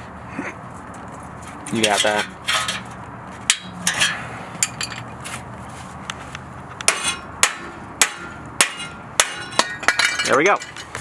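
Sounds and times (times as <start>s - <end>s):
hammer striking metal pipe: 3.5s - 4.8s, 6.9s - 10.4s.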